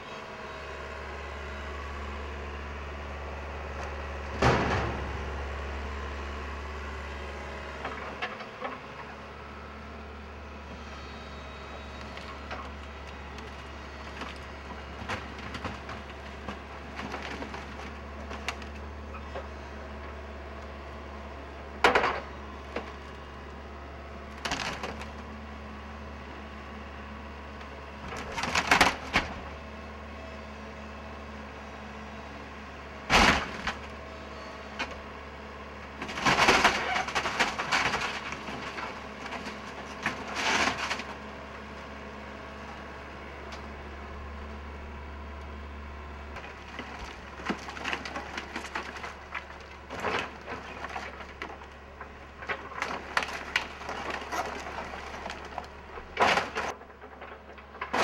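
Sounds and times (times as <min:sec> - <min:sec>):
low engine hum: 0:00.0 - 0:58.0
wooden structure cracking and splintering: 0:12.1 - 0:20.3, 0:24.3 - 0:25.3, 0:28.0 - 0:29.6, 0:33.0 - 0:34.0, 0:35.8 - 0:41.9, 0:46.4 - 0:58.0.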